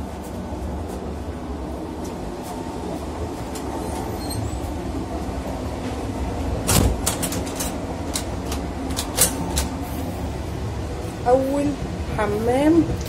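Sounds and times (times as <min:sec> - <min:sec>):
moving train rumble: 0:00.0 - 0:13.0
sharp clicks and rattles: 0:06.7 - 0:09.8.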